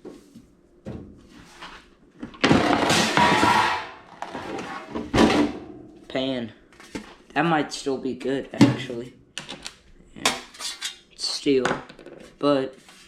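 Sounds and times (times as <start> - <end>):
metal clank: 2.5 - 4.0
metal pan scraping on metal: 2.6 - 5.0.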